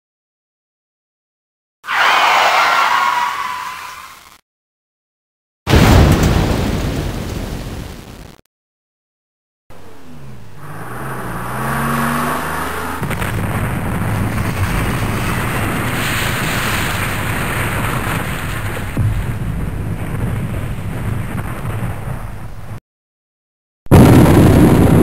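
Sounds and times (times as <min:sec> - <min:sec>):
explosion rumbling: 0:05.7 - 0:08.3, 0:12.8 - 0:22.8, 0:23.9 - 0:25.0
truck engine pulling away: 0:09.7 - 0:13.2.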